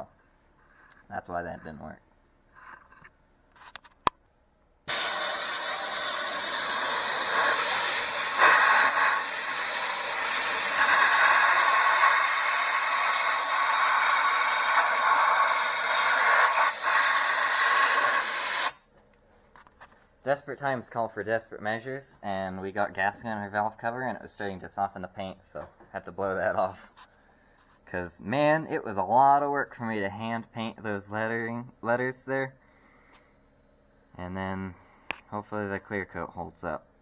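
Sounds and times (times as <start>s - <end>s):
air blow gun hissing: 4.9s - 18.8s.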